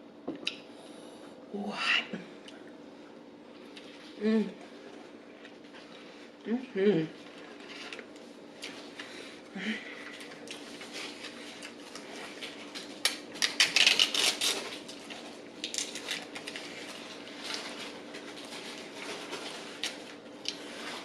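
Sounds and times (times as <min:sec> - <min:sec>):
chewing: 0:10.0 - 0:12.9
crisp crackling clicks: 0:12.8 - 0:16.8.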